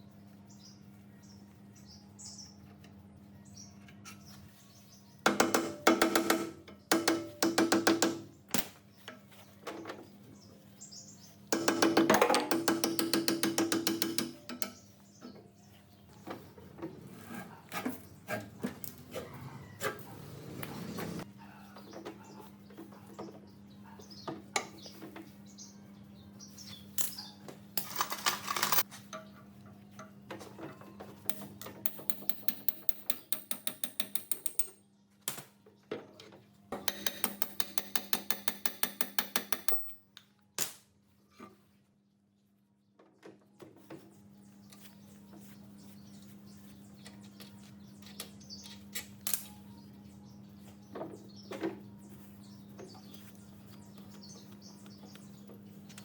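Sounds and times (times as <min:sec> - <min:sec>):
metal tool knocks: 0:05.3 - 0:08.3, 0:11.5 - 0:14.8, 0:36.8 - 0:40.0
ratchet clicking: 0:36.9 - 0:39.9.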